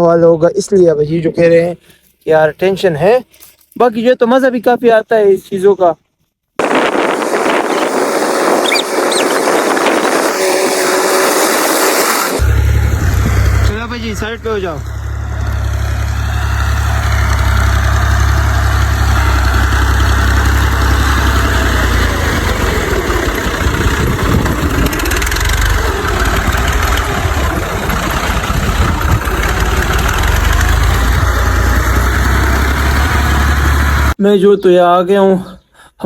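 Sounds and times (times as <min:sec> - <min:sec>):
tractor engine droning: 0:06.6 - 0:34.2.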